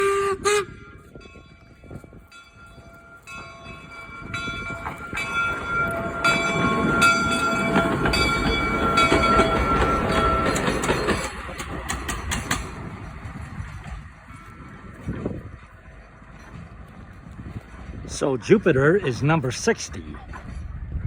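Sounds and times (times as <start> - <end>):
steam whistle toots: 0.0 - 1.0
steam locomotive running: 0.0 - 21.0
high metallic ringing tones: 0.7 - 11.3.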